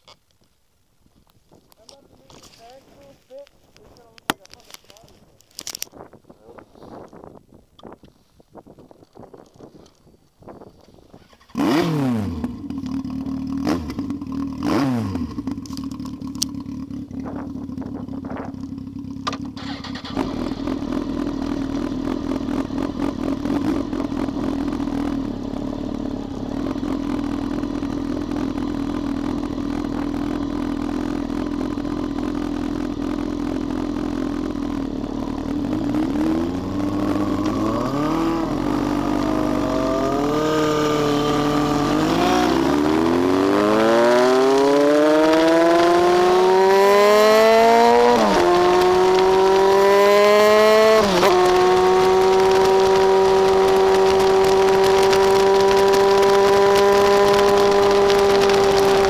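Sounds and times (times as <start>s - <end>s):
wind noise: 0.4s - 12.6s, 17.1s - 18.6s
motorcycle engine revving: 11.1s - 59.0s.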